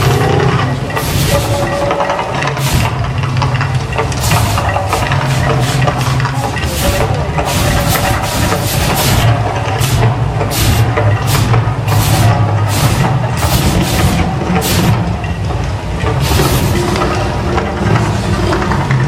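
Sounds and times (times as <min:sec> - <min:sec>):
deep continuous rumble: 0:00.0 - 0:19.0
short hissing bursts: 0:01.0 - 0:01.7, 0:04.2 - 0:15.0.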